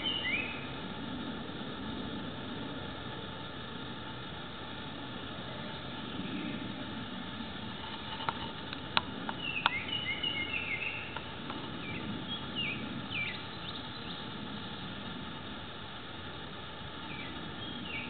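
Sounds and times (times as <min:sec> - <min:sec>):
small birds chirping: 0:00.0 - 0:00.8, 0:07.7 - 0:15.2, 0:16.9 - 0:18.0
background hiss: 0:00.0 - 0:18.0.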